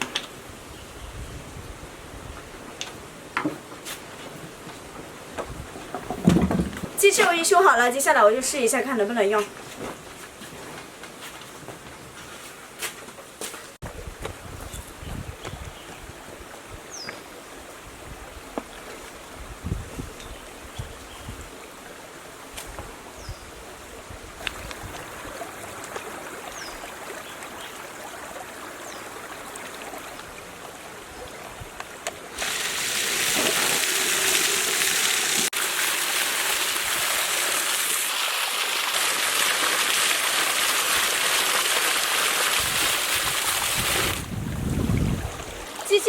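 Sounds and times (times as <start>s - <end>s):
water gushing: 24.4s - 31.6s, 32.3s - 46.0s
watery hiss: 32.4s - 44.3s.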